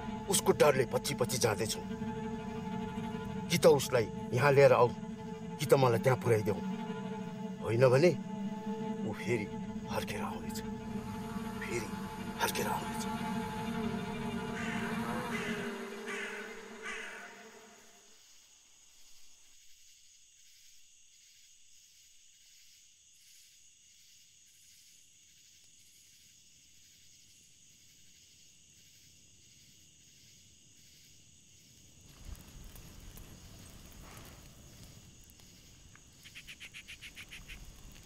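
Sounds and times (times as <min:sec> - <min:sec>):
low music drone: 0:00.0 - 0:17.9
insects chirring: 0:00.0 - 0:38.0
bird cawing: 0:13.5 - 0:18.0, 0:36.2 - 0:38.0.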